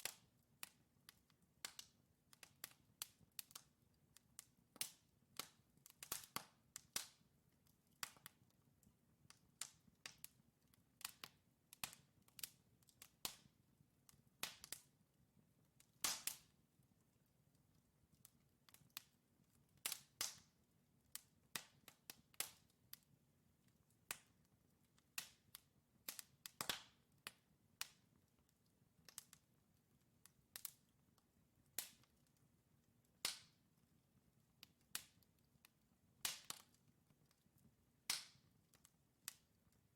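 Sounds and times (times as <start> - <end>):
logs crackling and popping: 14.1 - 14.9, 15.7 - 32.5, 33.1 - 33.6, 34.5 - 39.9.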